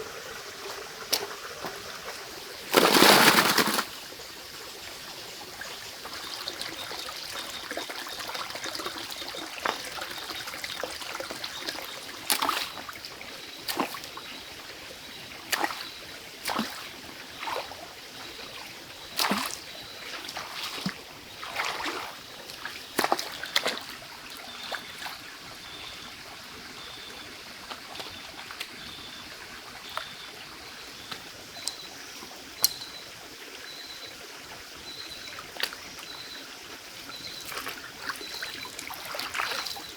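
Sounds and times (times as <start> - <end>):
water trickling: 0.0 - 39.9
short water splashes: 0.6 - 4.0, 6.0 - 13.0, 15.5 - 25.2, 37.1 - 39.9.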